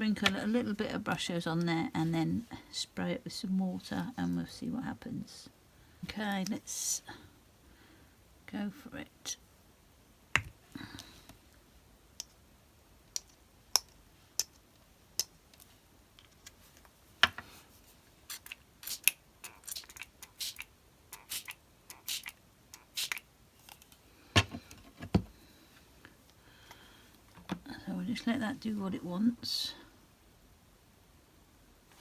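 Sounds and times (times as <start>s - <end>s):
spray bottle squirts: 18.3s - 23.2s
objects knocking on desk: 24.4s - 25.3s.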